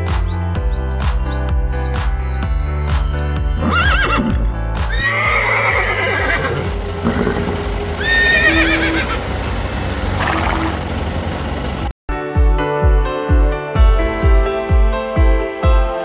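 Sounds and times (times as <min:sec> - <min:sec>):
background music: 0:00.0 - 0:16.0
horse whinnying: 0:03.6 - 0:09.2.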